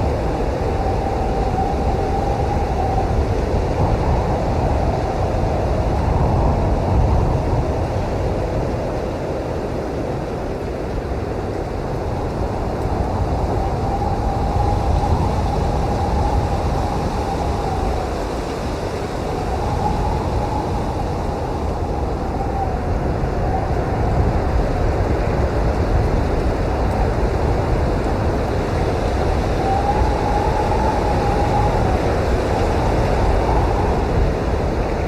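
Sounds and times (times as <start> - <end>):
faint howling whistle: 0.0 - 7.4, 12.2 - 24.4, 28.3 - 35.0
blizzard wind blowing hard: 0.0 - 35.0.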